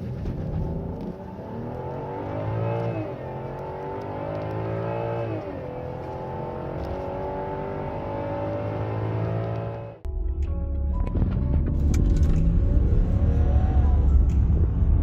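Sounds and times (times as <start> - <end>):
car engine accelerating: 0.0 - 10.1.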